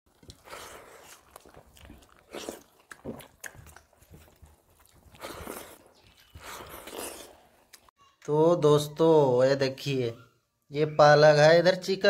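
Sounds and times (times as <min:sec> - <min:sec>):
wet chewing and lip-smacking: 0:00.1 - 0:07.9.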